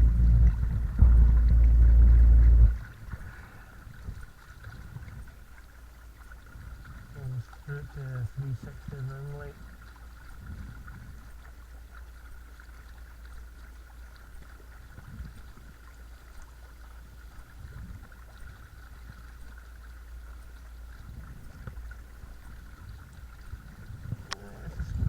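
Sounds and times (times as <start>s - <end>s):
electric motor whining: 0.0s - 2.8s
soft knocks: 0.0s - 2.8s
water rumbling against hull: 0.0s - 25.0s.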